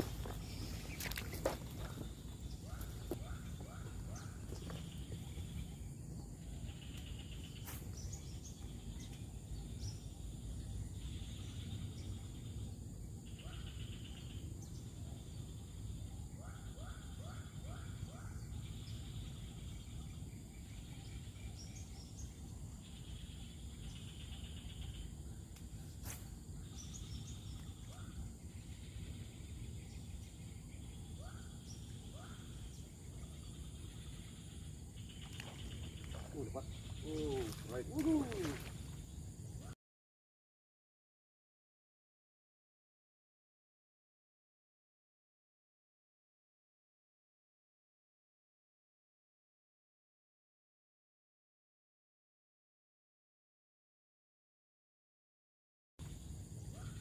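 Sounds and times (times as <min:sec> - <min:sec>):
insects chirring: 0:00.0 - 0:39.8, 0:56.0 - 0:57.0.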